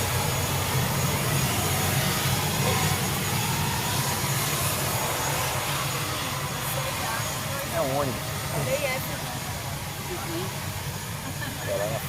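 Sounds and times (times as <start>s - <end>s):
aircraft engines droning: 0.0s - 12.0s.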